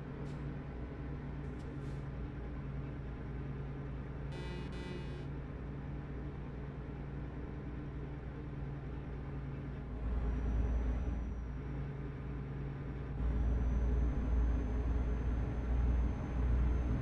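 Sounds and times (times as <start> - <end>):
faint high whine: 4.3 - 5.3.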